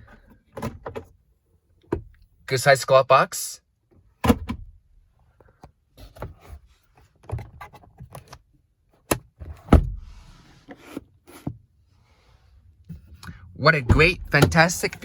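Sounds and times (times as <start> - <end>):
glove box lid shutting thud: 9.1 - 10.1.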